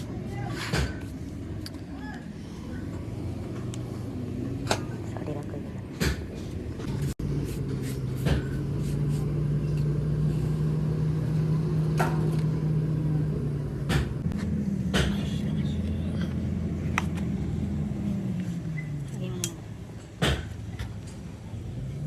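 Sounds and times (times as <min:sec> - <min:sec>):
sharp metal knocks and clanks: 0:13.8 - 0:15.4.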